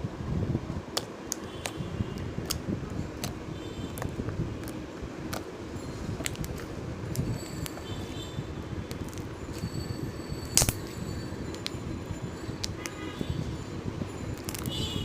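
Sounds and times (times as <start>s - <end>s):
slime being squished: 0.9s - 1.8s, 2.4s - 5.5s, 14.4s - 14.7s.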